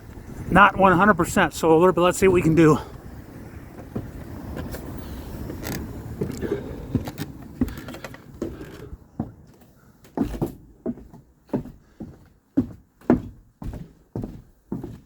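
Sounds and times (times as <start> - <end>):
footsteps going down stairs: 3.7 - 4.8, 5.4 - 15.0.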